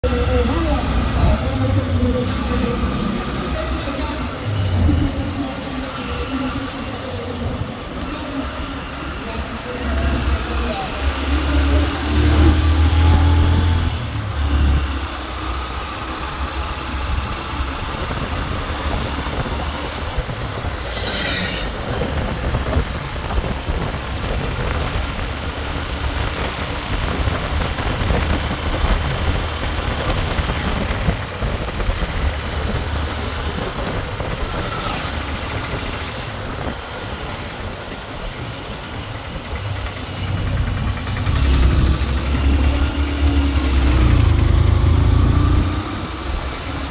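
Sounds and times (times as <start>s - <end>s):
engine and road noise: 0.0s - 46.9s
wind on microphone: 18.0s - 37.0s.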